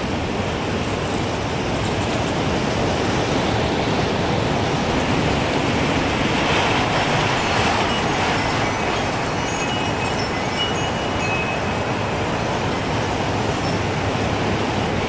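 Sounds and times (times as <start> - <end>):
strong gusting wind: 0.0 - 15.0
wind chime tinkling: 6.8 - 14.4.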